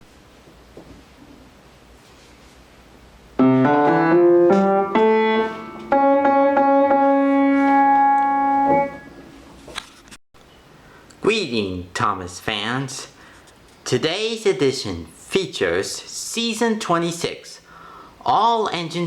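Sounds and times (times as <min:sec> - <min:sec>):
piano-like keyboard phrase: 0:03.4 - 0:09.2.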